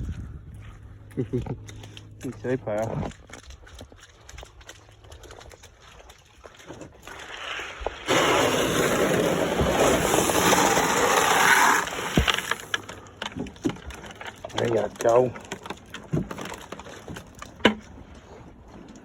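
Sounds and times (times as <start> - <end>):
grain pouring into feeder: 7.1 - 12.9.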